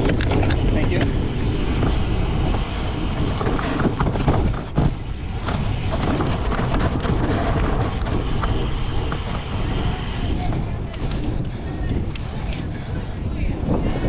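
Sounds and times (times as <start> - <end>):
bike rattling clicks and knocks: 0.0 - 12.9
bike tyre noise: 0.0 - 14.0
wind rumbling on microphone: 0.0 - 14.0.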